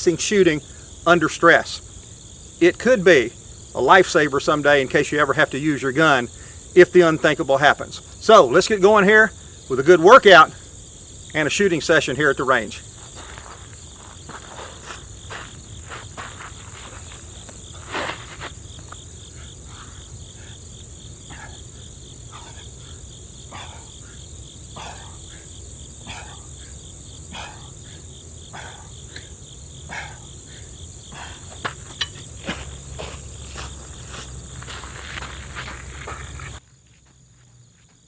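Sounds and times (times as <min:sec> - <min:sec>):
insects chirping: 0:00.0 - 0:38.0
soft scuffs and knocks: 0:13.1 - 0:19.0, 0:31.2 - 0:38.0.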